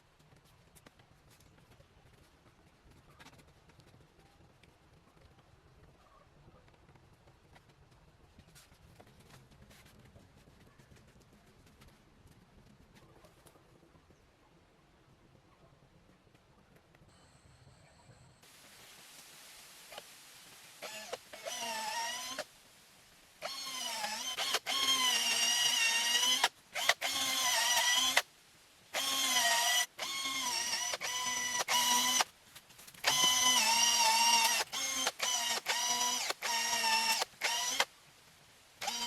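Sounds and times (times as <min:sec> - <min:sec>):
small electric motor whining: 0:20.8 - 0:22.5, 0:23.4 - 0:28.2, 0:29.0 - 0:32.3, 0:33.0 - 0:37.9, 0:38.8 - 0:39.0.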